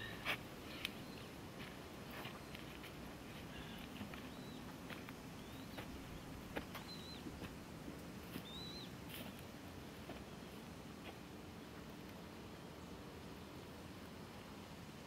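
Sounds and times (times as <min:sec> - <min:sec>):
bird whistling: 0:06.8 - 0:07.2, 0:08.4 - 0:08.9.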